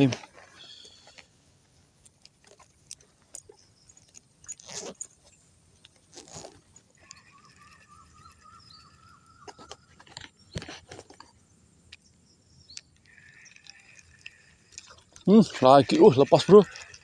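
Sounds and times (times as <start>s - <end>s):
fishing tackle clicks and rustling: 0.0s - 17.0s
bird calling in wavering notes: 7.0s - 9.6s.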